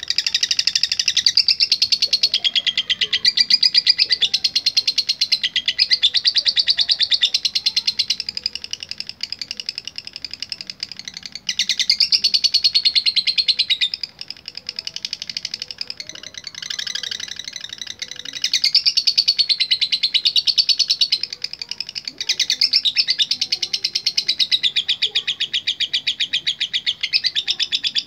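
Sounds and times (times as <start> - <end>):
lovebird chattering trill: 0.0 - 28.0.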